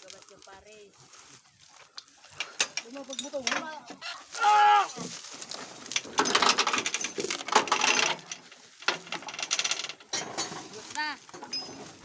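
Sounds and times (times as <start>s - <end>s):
rattling clatter: 5.0s - 12.0s.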